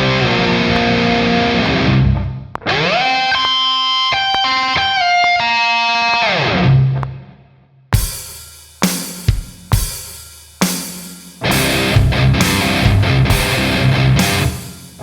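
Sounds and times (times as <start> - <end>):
distorted electric guitar: 0.0 - 7.3, 11.4 - 15.0.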